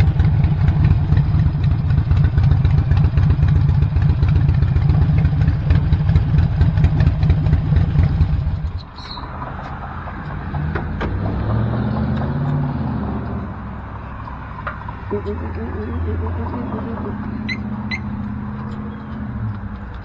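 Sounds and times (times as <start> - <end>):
motorcycle engine idling: 0.0 - 8.9.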